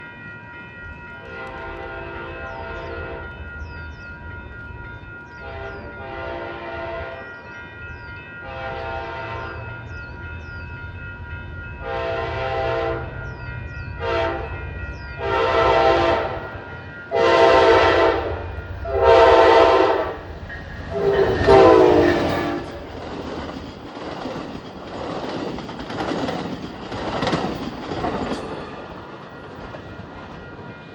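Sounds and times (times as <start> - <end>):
train wheels rattling over rails: 0.9 - 30.9
locomotive air horn blasts: 5.4 - 7.2, 8.4 - 9.6, 11.8 - 13.2, 14.0 - 14.5, 15.2 - 16.5, 17.1 - 20.3, 20.9 - 22.8.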